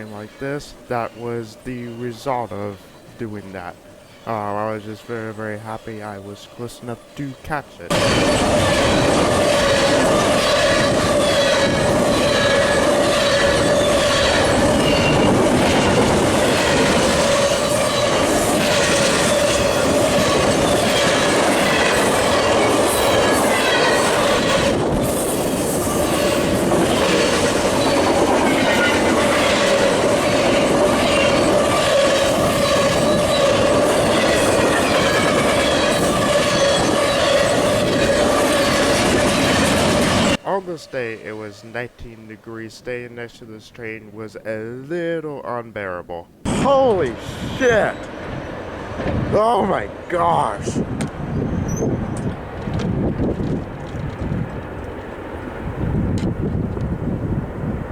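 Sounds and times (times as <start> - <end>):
train wheels clattering over rail joints: 7.9 - 40.4, 51.0 - 55.1.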